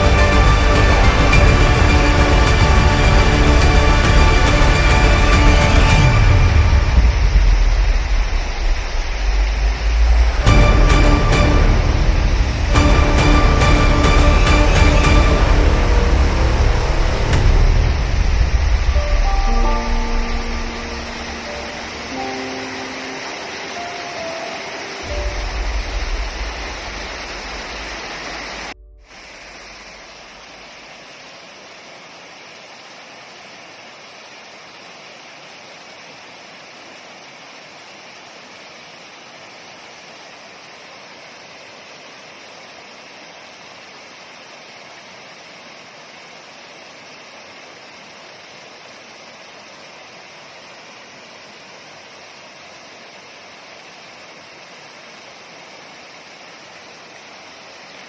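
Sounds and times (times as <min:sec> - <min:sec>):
deep rumble: 0:00.0 - 0:22.0, 0:25.1 - 0:30.1
flowing water rushing: 0:00.0 - 0:58.0.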